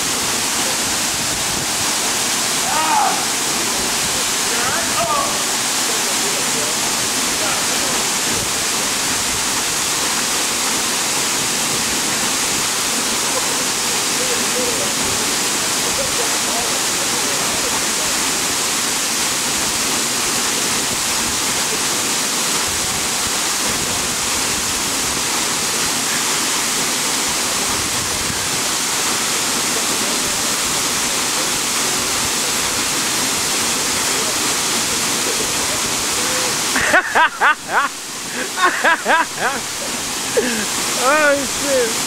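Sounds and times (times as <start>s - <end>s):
waterfall rushing into pool: 0.0s - 42.0s
voices: 2.6s - 3.4s, 35.2s - 42.0s.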